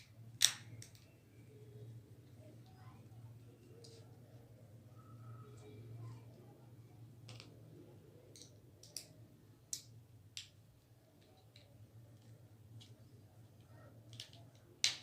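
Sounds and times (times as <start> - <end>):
small parts clicking: 0.0 - 1.2, 8.3 - 15.0.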